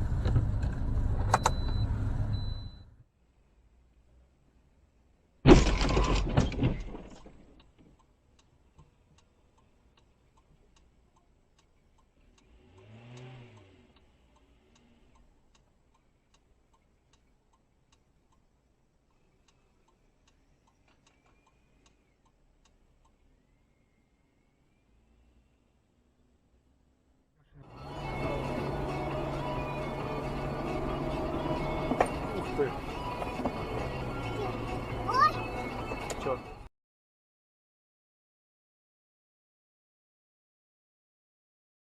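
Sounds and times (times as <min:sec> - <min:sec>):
faint steady ticking: 0:07.6 - 0:27.2
rising and falling hum: 0:27.6 - 0:36.2.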